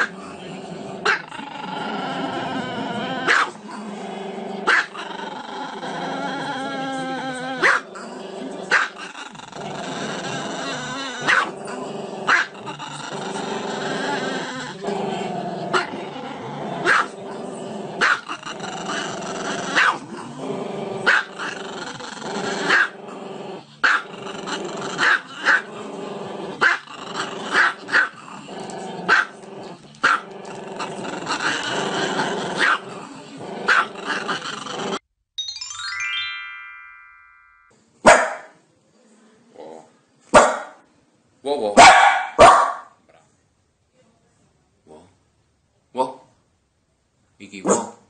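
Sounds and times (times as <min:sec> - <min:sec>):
dog barking: 0:03.3 - 0:03.6, 0:04.7 - 0:05.0, 0:07.6 - 0:07.8, 0:08.7 - 0:08.9, 0:11.2 - 0:11.5, 0:12.3 - 0:12.5, 0:16.8 - 0:17.1, 0:18.0 - 0:18.2, 0:19.8 - 0:20.0, 0:21.1 - 0:21.3, 0:22.7 - 0:22.9, 0:23.8 - 0:24.0, 0:26.6 - 0:26.8, 0:27.6 - 0:28.1, 0:29.1 - 0:29.3, 0:32.6 - 0:32.8, 0:33.7 - 0:33.9, 0:38.0 - 0:38.6, 0:40.3 - 0:40.8, 0:41.8 - 0:43.0, 0:47.6 - 0:48.0
background music: 0:35.4 - 0:37.7
run of falling notes: 0:35.4 - 0:37.7.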